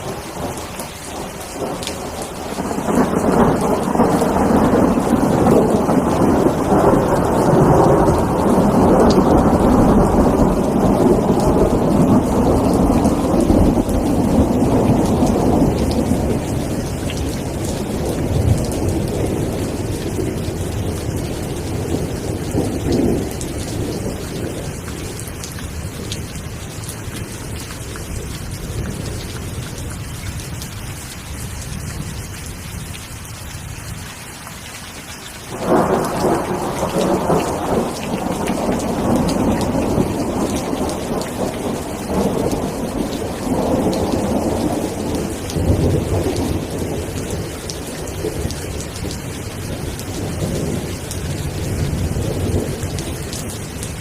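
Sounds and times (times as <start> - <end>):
thunder rumbling: 0.0 - 30.5, 35.5 - 54.0
steady rain: 0.0 - 54.0
thunder clap: 1.2 - 25.1, 35.5 - 49.2.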